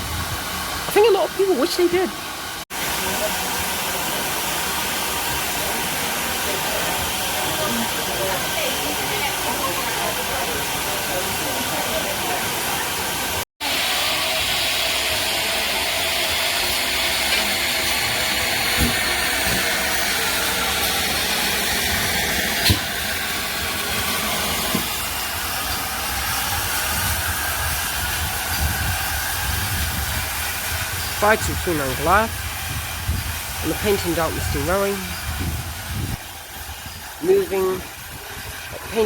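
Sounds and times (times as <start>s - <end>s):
steam locomotive hissing: 0.0s - 39.0s.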